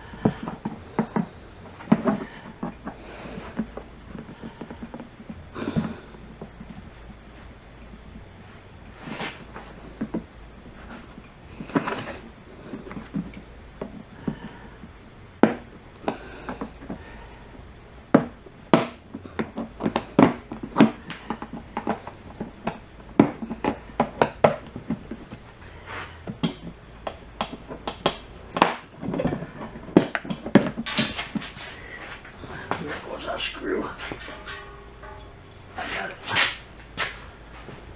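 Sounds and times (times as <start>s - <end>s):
tools and screws clinking on metal: 26.3s - 37.7s.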